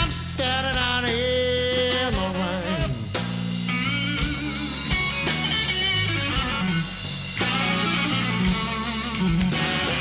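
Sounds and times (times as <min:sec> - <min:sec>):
slow blues band playing: 0:00.0 - 0:10.0
electric guitar bent notes: 0:02.3 - 0:10.0.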